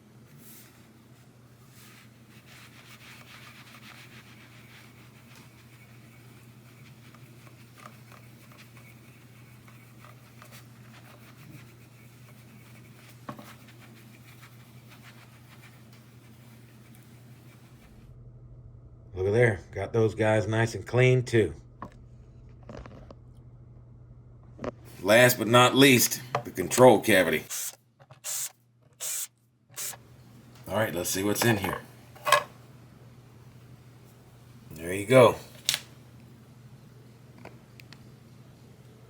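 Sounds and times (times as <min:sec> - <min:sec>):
low hum: 0:17.8 - 0:25.1.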